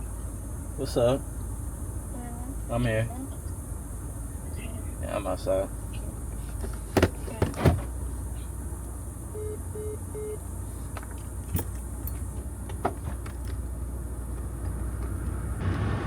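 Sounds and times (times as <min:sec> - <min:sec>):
car rumbling: 0:00.0 - 0:16.0
short electronic beeps: 0:09.3 - 0:10.4.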